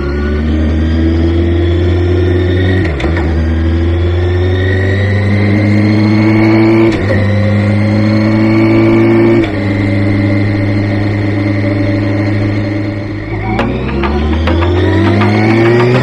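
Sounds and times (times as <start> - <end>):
motorcycle engine running: 3.4 - 16.0.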